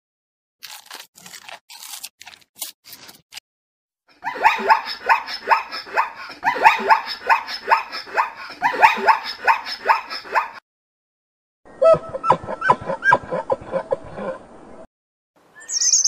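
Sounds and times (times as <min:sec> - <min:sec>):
zebra barking yelps: 0:04.2 - 0:10.6.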